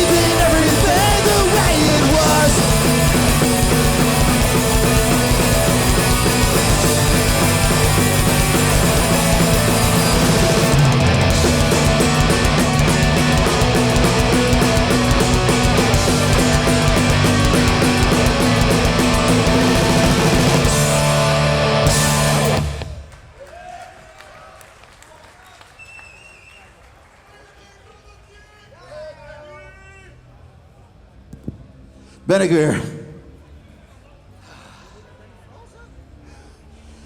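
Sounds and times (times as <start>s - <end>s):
punk band playing live: 0.0s - 23.1s.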